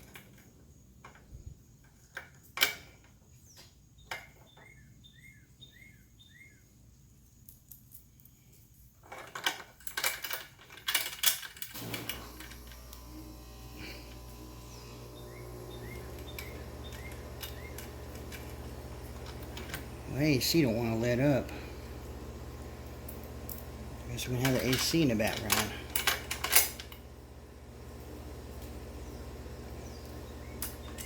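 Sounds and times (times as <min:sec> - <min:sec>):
bird chirping: 0:03.3 - 0:07.0, 0:14.6 - 0:18.0, 0:29.0 - 0:31.0
metal hardware clinking: 0:09.1 - 0:13.1, 0:16.0 - 0:21.6, 0:23.2 - 0:27.1
air conditioner humming: 0:11.7 - 0:31.0.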